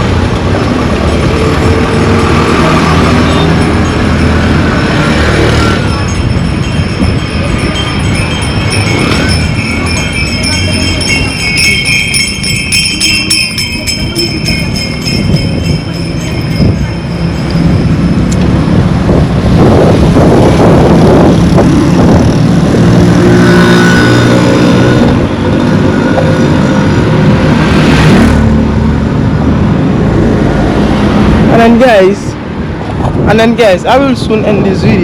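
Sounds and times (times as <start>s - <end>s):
vehicle passing on road: 0.0s - 35.0s
high jingling ringing tones: 0.9s - 19.0s, 25.7s - 27.6s.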